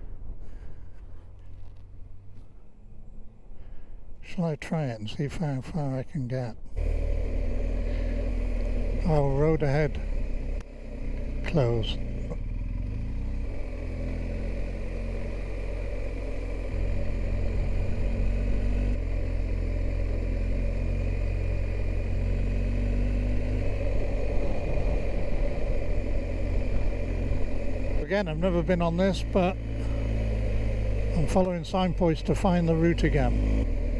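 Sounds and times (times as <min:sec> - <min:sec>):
road and wind noise: 0:00.0 - 0:33.9
motorcycle engine running: 0:06.8 - 0:33.9.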